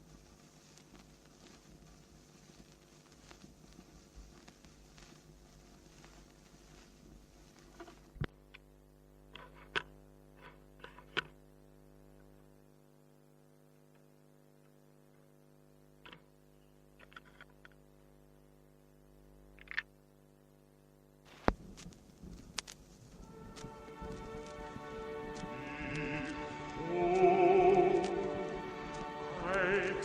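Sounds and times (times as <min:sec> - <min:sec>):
steady low hum: 0:00.0 - 0:30.0
faint clicks: 0:21.3 - 0:28.2
orchestral strings: 0:23.1 - 0:30.0.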